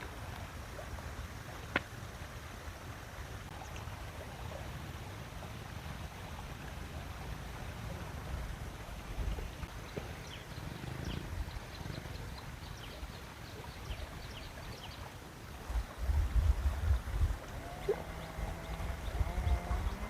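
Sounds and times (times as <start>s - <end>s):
low outdoor rumble: 15.5s - 20.0s.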